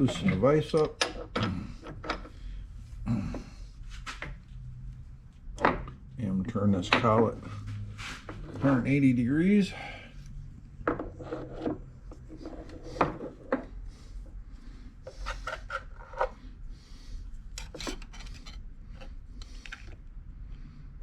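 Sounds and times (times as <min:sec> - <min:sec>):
metal clinks and knocks: 0:17.5 - 0:19.1
metal parts scraping: 0:17.5 - 0:19.1
short metal rings: 0:17.6 - 0:18.6.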